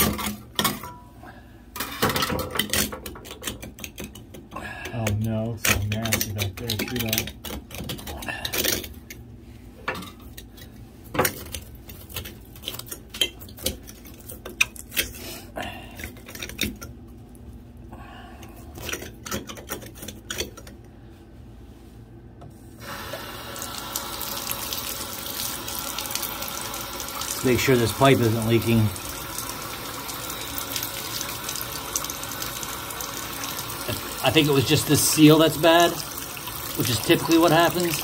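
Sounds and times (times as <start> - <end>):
water running from pipe: 22.8 - 38.0.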